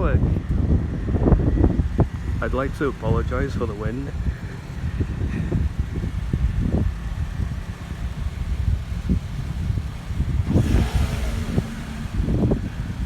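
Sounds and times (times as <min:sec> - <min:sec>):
wind buffeting microphone: 0:00.0 - 0:13.0
cars driving away: 0:00.3 - 0:13.0.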